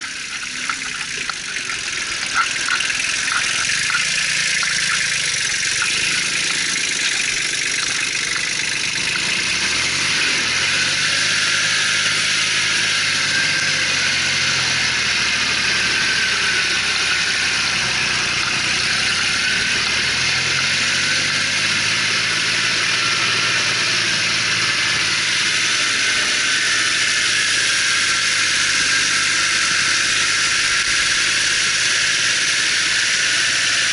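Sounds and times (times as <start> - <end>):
dense mechanical clatter: 0.0 - 11.0
tractor diesel engine under load: 0.0 - 33.9.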